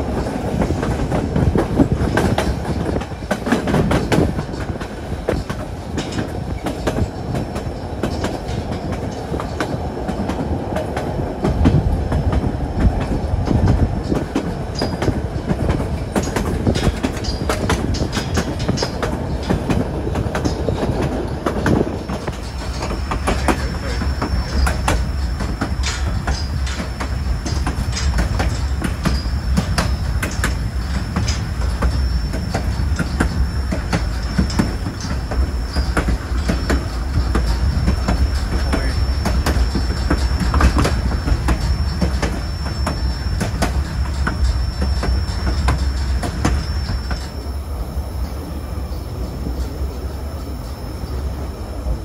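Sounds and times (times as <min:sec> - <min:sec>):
train rumble: 0:00.0 - 0:52.0
wheels clicking over rails: 0:00.0 - 0:52.0
high-pitched wheel squeal: 0:21.6 - 0:47.6.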